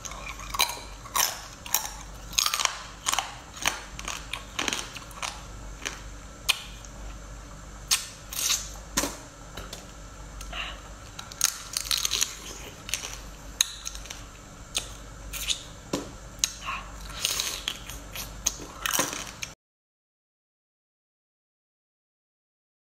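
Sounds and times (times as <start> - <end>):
chewing: 0.0 - 7.2, 10.4 - 15.7, 16.4 - 19.5
flesh tearing: 7.9 - 8.7.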